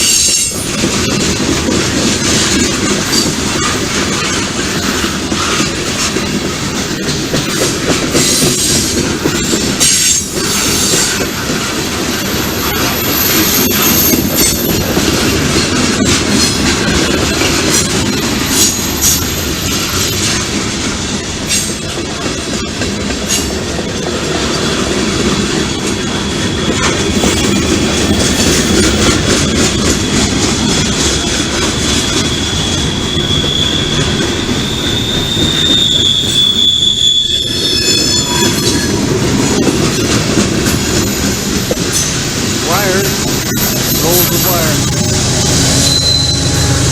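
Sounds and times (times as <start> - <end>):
wheels clicking over rail joints: 0.0 - 32.5, 38.5 - 44.3
freight train cars rumbling: 0.0 - 46.9
high wheel squeal: 8.2 - 15.5, 25.6 - 46.9.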